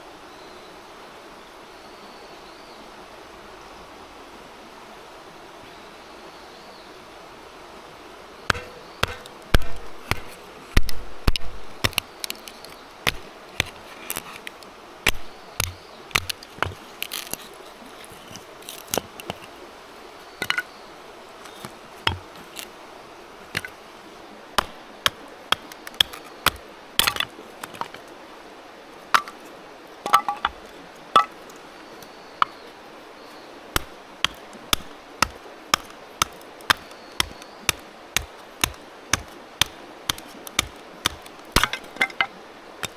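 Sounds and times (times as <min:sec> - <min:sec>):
faint steady hiss: 0:00.0 - 0:42.9
wood chopping knocks: 0:08.5 - 0:14.5, 0:15.1 - 0:17.5, 0:20.4 - 0:20.6, 0:21.5 - 0:22.7, 0:23.6 - 0:23.8, 0:24.6 - 0:28.1, 0:29.2 - 0:29.4, 0:30.1 - 0:31.6, 0:33.8 - 0:42.9.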